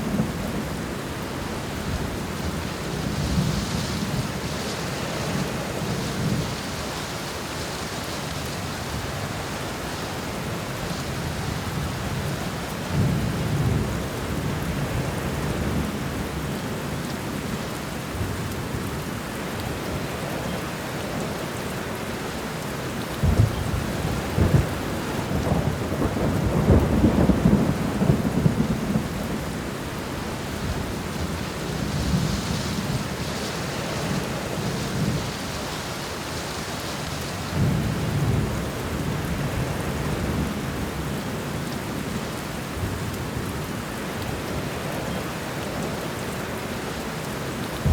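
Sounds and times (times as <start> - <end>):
heavy rainfall: 0.0 - 47.9
thunder cracks: 23.2 - 29.1
rolling thunder: 23.2 - 29.6.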